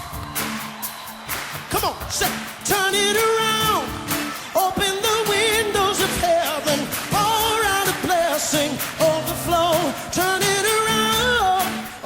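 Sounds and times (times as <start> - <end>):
band with steady beat: 0.0 - 12.0
person singing with vibrato: 1.6 - 12.0.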